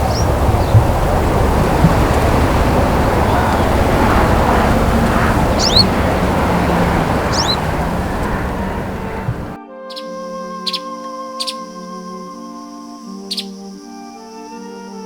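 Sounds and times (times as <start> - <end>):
steady rushing noise: 0.0 - 9.6
small bird chirping: 0.0 - 10.0.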